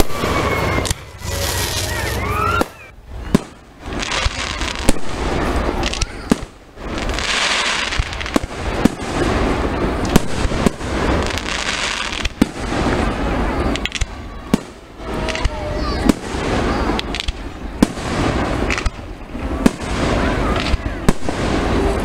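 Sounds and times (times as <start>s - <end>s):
rising firework whistle: 0.0s - 6.4s
firework bangs: 0.0s - 22.0s
firework crackling: 0.0s - 22.0s.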